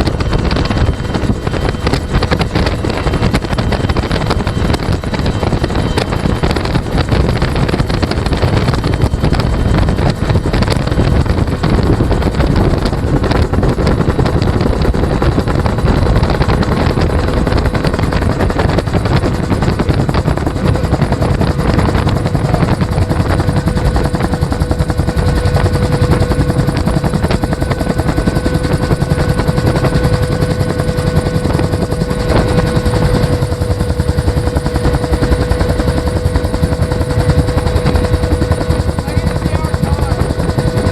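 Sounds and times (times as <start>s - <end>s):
helicopter rotor beating: 0.0s - 40.9s
turbine engine whine: 0.0s - 40.9s.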